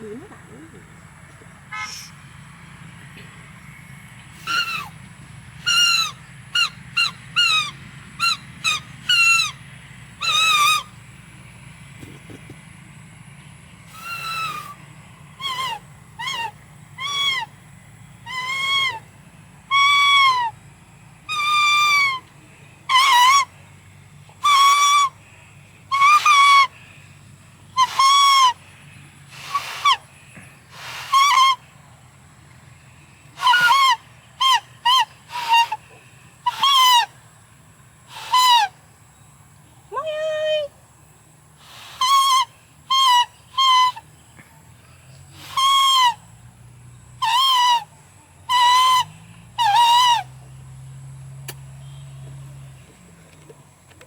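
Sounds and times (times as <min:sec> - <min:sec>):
leaf trumpet toots: 0:01.7 - 0:02.2, 0:04.3 - 0:05.0, 0:05.6 - 0:09.6, 0:10.2 - 0:11.0, 0:13.9 - 0:14.8, 0:15.4 - 0:17.5, 0:21.3 - 0:23.5, 0:25.9 - 0:26.8, 0:27.7 - 0:28.6, 0:29.3 - 0:31.7, 0:33.2 - 0:37.2, 0:38.1 - 0:38.8, 0:41.6 - 0:44.0, 0:45.3 - 0:46.3, 0:47.2 - 0:47.9, 0:48.5 - 0:50.4.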